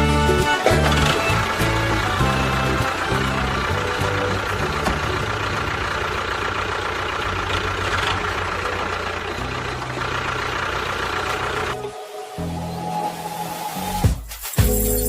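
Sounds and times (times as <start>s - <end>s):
background music: 0.0s - 6.1s, 8.2s - 15.0s
engine idling: 0.0s - 12.5s.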